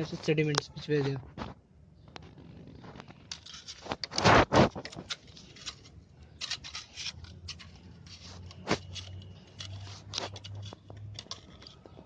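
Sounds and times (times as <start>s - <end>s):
screwdriver scraping dirt: 2.9s - 12.0s.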